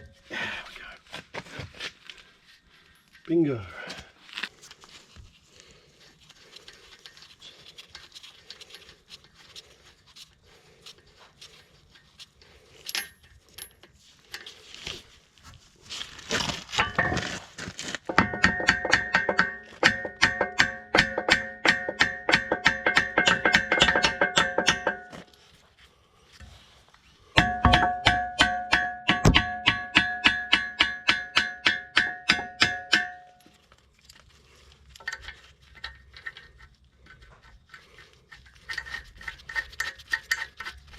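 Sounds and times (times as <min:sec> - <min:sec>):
hammer striking steel pin: 0:18.1 - 0:25.2, 0:27.4 - 0:33.5.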